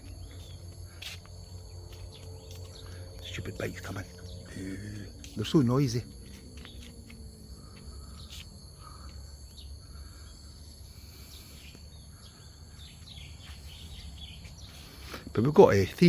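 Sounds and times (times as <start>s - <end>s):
insects buzzing: 0.0s - 16.0s
bird chirps: 8.0s - 16.0s.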